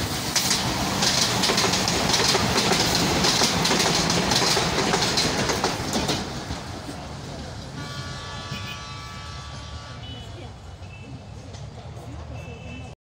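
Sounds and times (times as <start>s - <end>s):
train wheels rushing on track: 0.0s - 12.9s
wheels clicking over rail joints: 0.2s - 7.8s.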